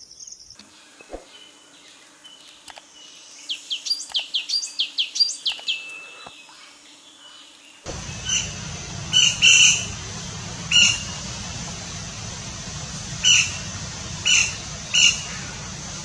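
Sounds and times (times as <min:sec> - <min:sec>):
low background rumble: 0:07.9 - 0:16.0.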